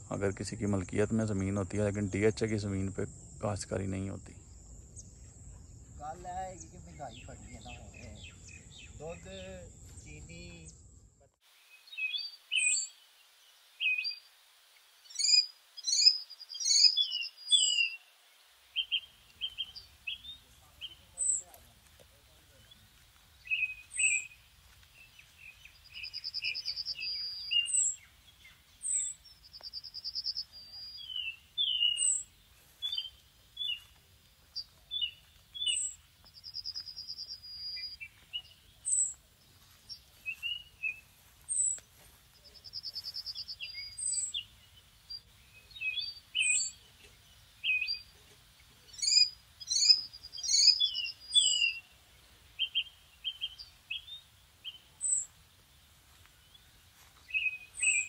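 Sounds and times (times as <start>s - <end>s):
birds chirping: 0.0s - 58.0s
buzzy bird trill: 15.1s - 18.1s, 23.4s - 39.2s, 42.4s - 47.0s, 48.8s - 51.9s.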